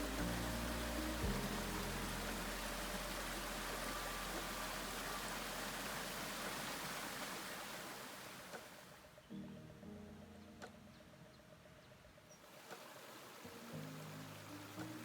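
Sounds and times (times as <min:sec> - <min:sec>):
rushing river water: 0:00.0 - 0:09.0, 0:12.4 - 0:15.0.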